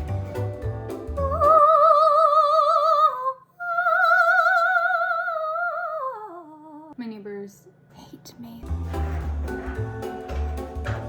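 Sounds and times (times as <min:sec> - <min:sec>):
woman singing operatic notes: 0:01.2 - 0:07.0.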